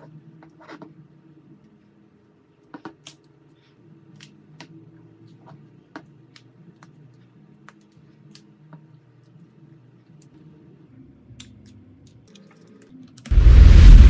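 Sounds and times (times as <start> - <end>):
low steady hum: 13.3 - 14.0.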